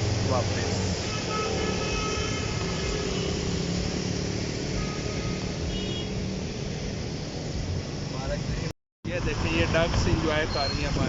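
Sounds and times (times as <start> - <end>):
tyres hissing on wet road: 0.0 - 11.0.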